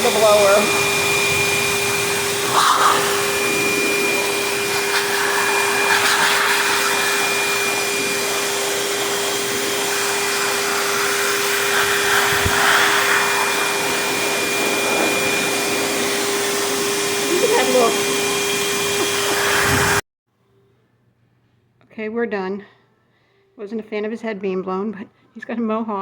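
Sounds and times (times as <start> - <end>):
grooming blower whining: 0.0 - 20.0.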